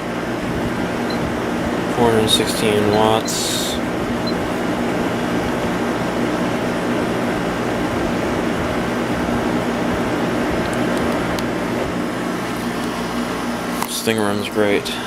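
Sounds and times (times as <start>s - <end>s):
low compressor hum: 0.0s - 13.8s
air conditioner fan rushing: 0.0s - 15.0s.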